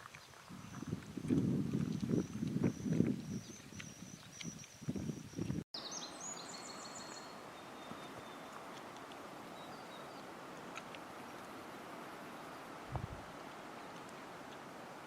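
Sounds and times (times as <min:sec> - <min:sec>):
small bird singing: 0:02.1 - 0:08.7, 0:09.5 - 0:10.8
steady outdoor hiss: 0:03.6 - 0:15.0
low footfalls: 0:12.9 - 0:13.2.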